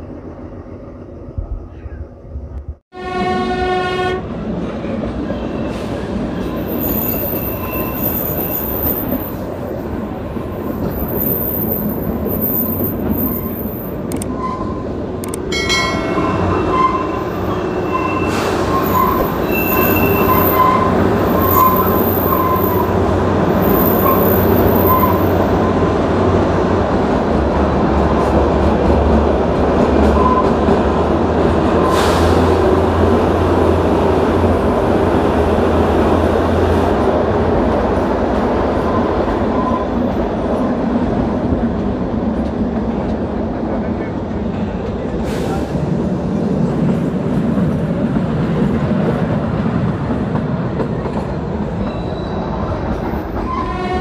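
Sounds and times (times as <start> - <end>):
train horn: 2.9 - 4.4, 53.5 - 54.0
high wheel squeal: 6.6 - 9.4, 16.0 - 23.0, 23.6 - 25.8, 51.8 - 52.6.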